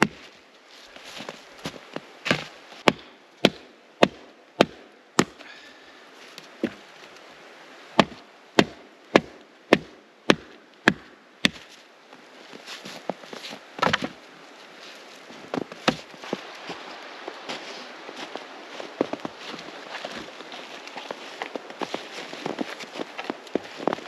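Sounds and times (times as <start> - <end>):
wood being chopped: 0.0 - 0.2, 2.3 - 5.4, 8.0 - 11.6, 13.8 - 14.2, 15.8 - 16.1.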